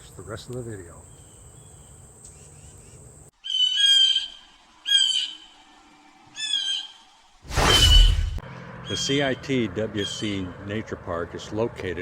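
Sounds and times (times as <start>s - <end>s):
bird giving harsh calls: 3.4s - 5.5s.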